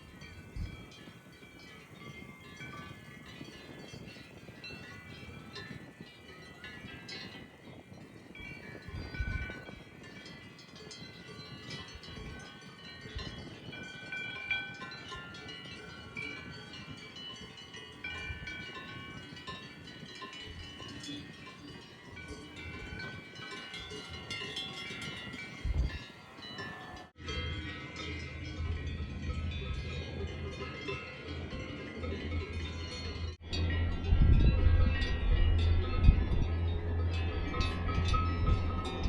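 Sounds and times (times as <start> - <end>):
cowbells ringing: 0.0 - 39.0
low rumble: 33.4 - 39.0.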